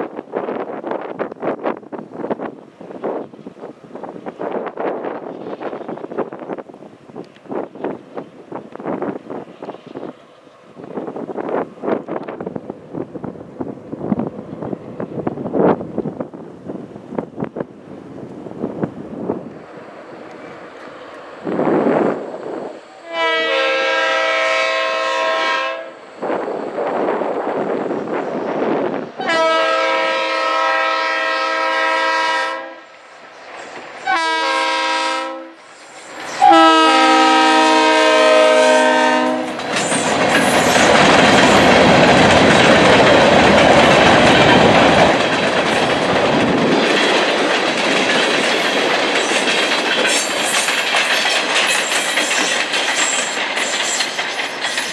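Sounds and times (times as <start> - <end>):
diesel locomotive horn: 23.0 - 26.0, 29.2 - 32.9, 34.0 - 35.6, 36.4 - 39.6
train wheels clacking over rail joints: 39.2 - 54.9.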